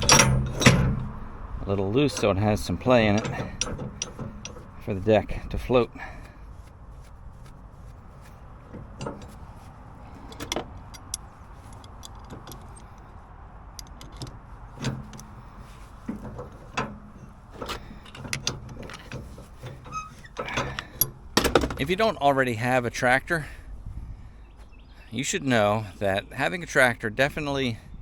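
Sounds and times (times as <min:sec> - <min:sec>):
metal clinks and knocks: 0:00.0 - 0:06.7, 0:07.3 - 0:13.1, 0:13.8 - 0:22.2
steady low rumble: 0:00.0 - 0:25.2.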